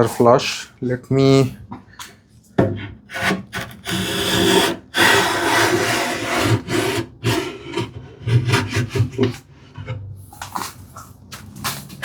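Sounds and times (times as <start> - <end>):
hand plane strokes on wood: 3.1 - 9.4.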